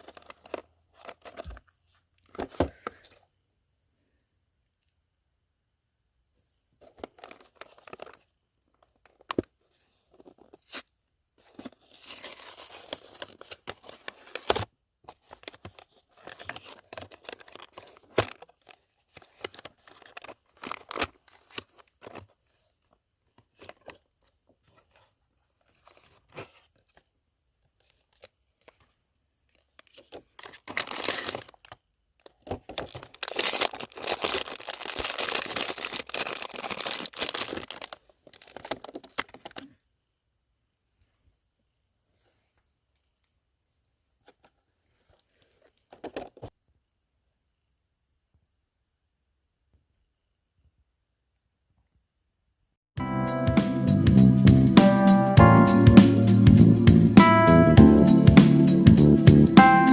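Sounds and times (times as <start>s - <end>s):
packaging crinkling by hand: 0.0s - 3.2s, 6.8s - 39.8s, 44.2s - 46.6s.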